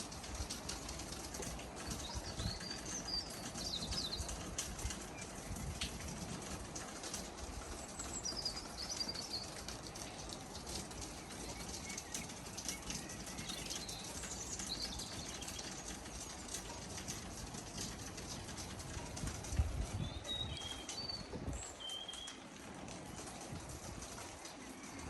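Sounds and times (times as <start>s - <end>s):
dripping ticks: 0.0s - 25.0s
rain hiss: 0.0s - 25.0s.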